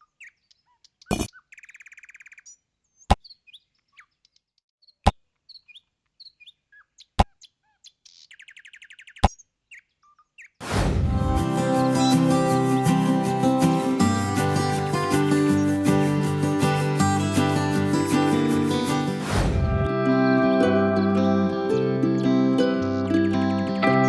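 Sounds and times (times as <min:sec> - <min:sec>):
acoustic guitar music: 0:11.0 - 0:24.0
buzzy trill: 0:11.1 - 0:19.3.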